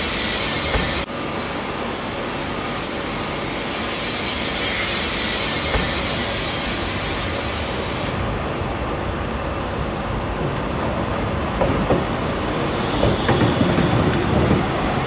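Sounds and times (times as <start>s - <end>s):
train wheels rumbling: 3.4s - 15.0s.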